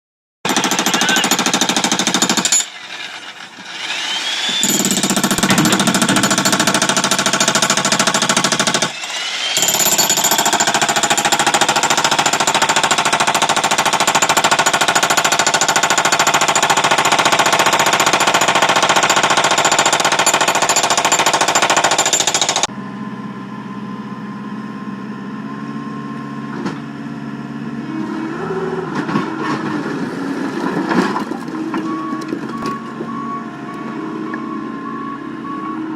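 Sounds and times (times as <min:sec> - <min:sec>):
electric jackhammer hammering concrete: 0:00.5 - 0:22.7
engine-like hum: 0:22.7 - 0:35.9.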